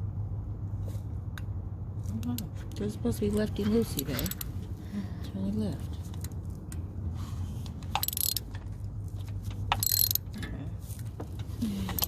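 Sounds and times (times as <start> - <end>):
ratchet wrench clicking: 3.9 - 4.6, 7.7 - 10.6, 11.4 - 12.0.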